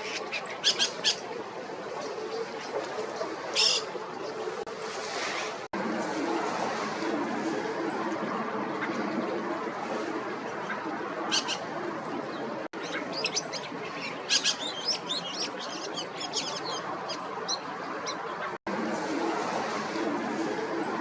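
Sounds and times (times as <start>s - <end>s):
thrush calling: 0.0s - 1.2s, 3.5s - 3.9s, 12.8s - 17.2s.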